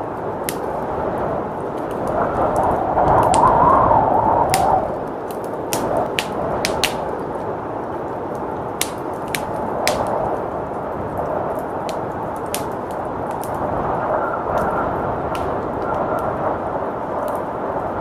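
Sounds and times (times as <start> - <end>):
blizzard wind rushing: 0.0 - 18.0
wood fire crackling and popping: 0.0 - 18.0.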